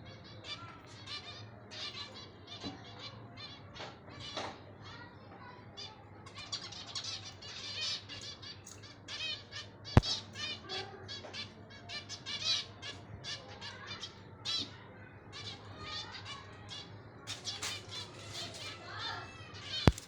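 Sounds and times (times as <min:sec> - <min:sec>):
parakeet chirping and squawking: 0:17.3 - 0:18.8, 0:19.8 - 0:20.0.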